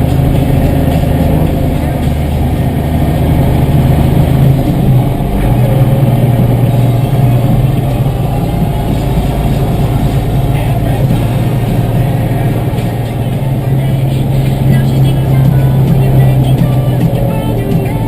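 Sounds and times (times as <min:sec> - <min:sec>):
tractor diesel engine drone: 0:00.0 - 0:18.0.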